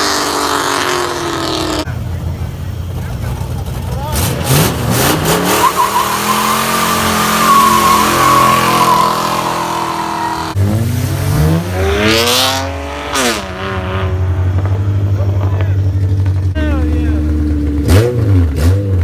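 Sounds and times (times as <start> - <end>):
car engine revving: 0.0 - 19.0
engine rumbling idle: 1.8 - 4.5, 13.8 - 18.7
tyres squealing: 3.9 - 10.6.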